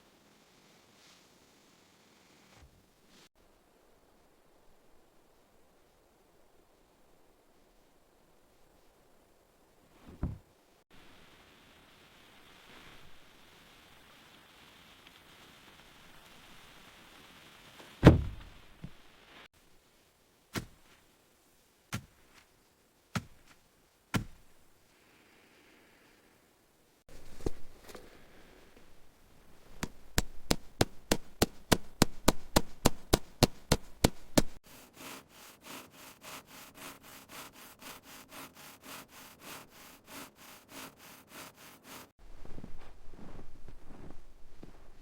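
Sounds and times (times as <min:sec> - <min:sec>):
knocks and thuds on wood: 0:10.1 - 0:10.4, 0:18.0 - 0:19.0, 0:24.2 - 0:24.5, 0:29.8 - 0:34.6
fast sharp tool strikes: 0:24.2 - 0:24.4, 0:29.8 - 0:42.1
back-and-forth stroking on wood: 0:29.8 - 0:42.2.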